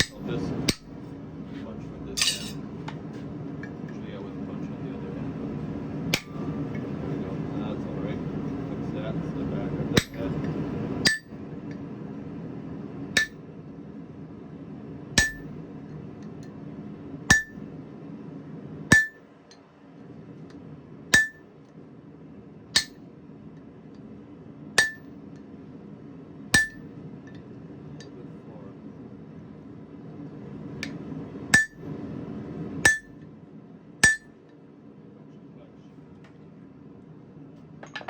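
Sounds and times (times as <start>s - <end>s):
hammer striking punch on anvil: 0.0s - 0.9s, 2.2s - 2.6s, 6.2s - 6.4s, 10.0s - 10.2s, 11.0s - 11.3s, 13.2s - 13.4s, 15.2s - 15.5s, 17.3s - 17.6s, 18.9s - 19.2s, 21.1s - 21.4s, 22.8s - 23.0s, 24.8s - 25.1s, 26.6s - 26.8s, 31.6s - 31.8s, 32.8s - 33.2s, 34.0s - 34.4s.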